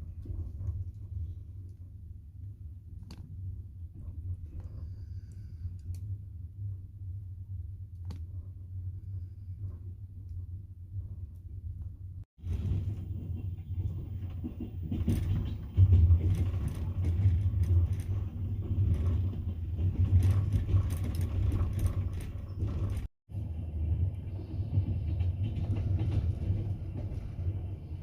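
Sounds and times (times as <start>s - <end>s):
train wheels rumbling on rails: 11.9s - 28.0s
carriage body clicks and creaks: 14.3s - 23.1s.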